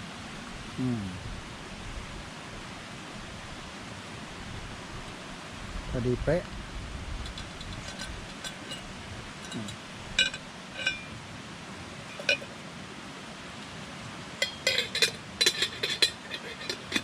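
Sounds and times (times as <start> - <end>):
cookware clinking: 7.3 - 11.2, 12.0 - 12.6, 14.4 - 17.0.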